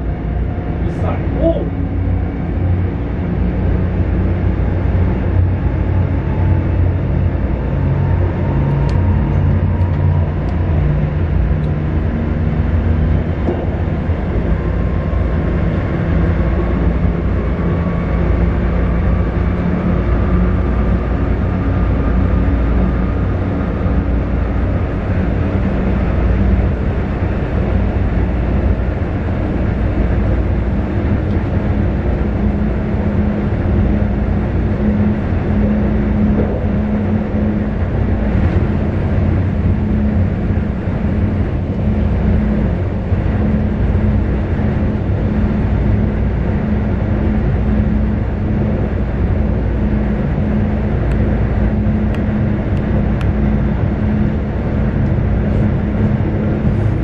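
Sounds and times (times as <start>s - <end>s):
faint whine shifting pitch: 0.0s - 28.8s
train rumbling in tunnel: 0.0s - 57.0s.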